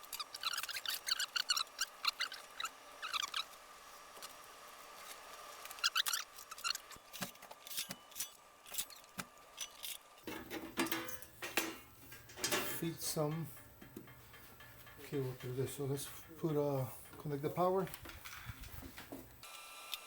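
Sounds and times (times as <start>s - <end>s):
small metal parts clicking and rattling: 5.6s - 18.8s.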